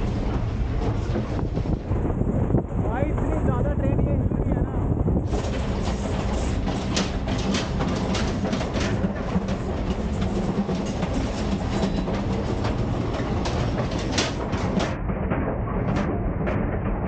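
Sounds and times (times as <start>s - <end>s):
train low rumble: 0.0s - 17.0s
metallic clanks and rattles: 5.2s - 17.0s.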